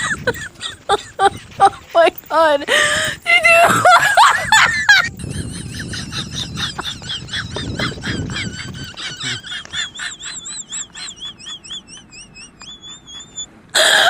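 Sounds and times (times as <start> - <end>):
bird chirping and trilling: 6.3 - 13.5.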